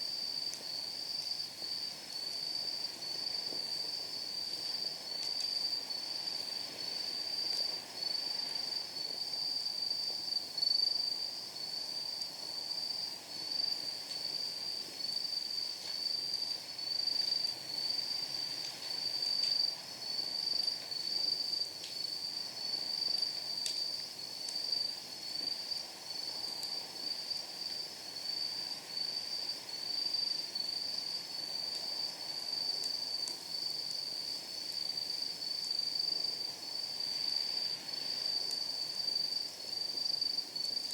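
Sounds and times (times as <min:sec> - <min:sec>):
night insects trilling: 0:00.0 - 0:40.9
firewood crackling: 0:00.4 - 0:09.0, 0:13.1 - 0:27.8, 0:31.5 - 0:35.2.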